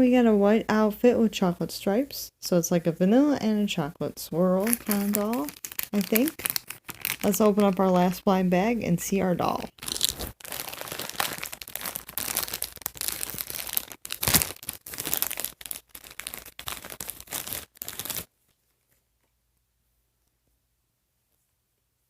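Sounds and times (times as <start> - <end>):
plastic bag crinkling and tearing: 4.6 - 7.9, 9.5 - 19.1.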